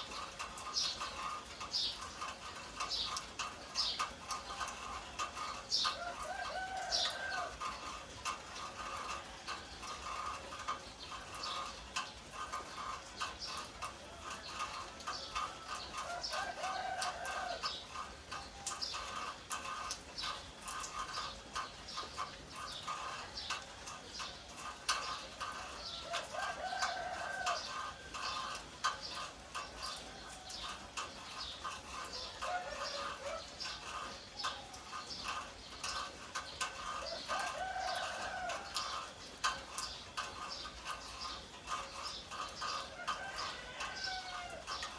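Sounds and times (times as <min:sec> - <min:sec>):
rooster crowing: 0:06.0 - 0:07.6, 0:14.1 - 0:17.7, 0:25.6 - 0:28.6, 0:32.0 - 0:34.9, 0:36.9 - 0:39.1, 0:42.6 - 0:44.9.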